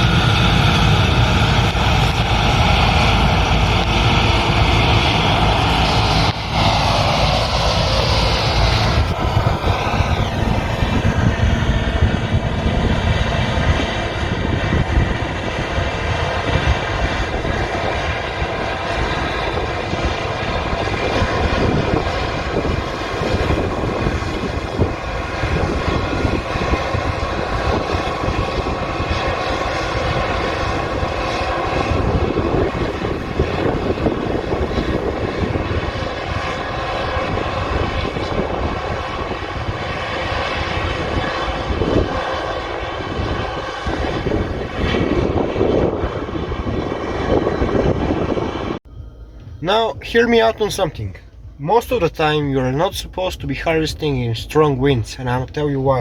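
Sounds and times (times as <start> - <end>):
combine harvester drone: 0.0 - 56.0
machinery whining tones: 0.0 - 56.0.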